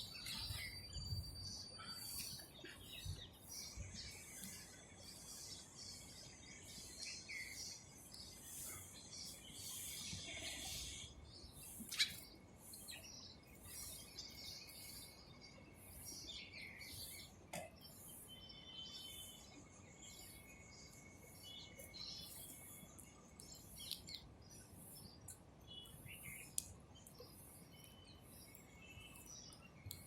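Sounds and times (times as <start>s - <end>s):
birds chirping and calling: 0.0s - 19.4s.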